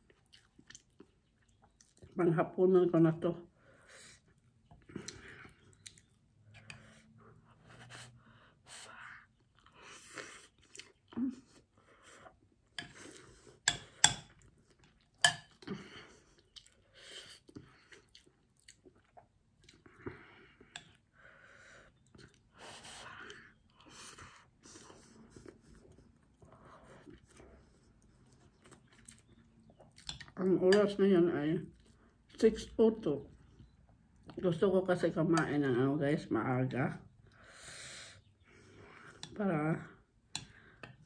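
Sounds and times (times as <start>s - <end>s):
person chewing food: 0.0s - 2.2s, 4.2s - 8.2s, 9.1s - 30.4s.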